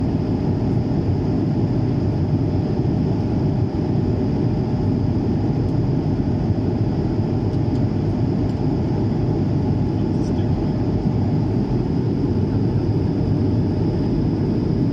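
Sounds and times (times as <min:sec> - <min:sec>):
aircraft engine rumble: 0:00.0 - 0:14.9.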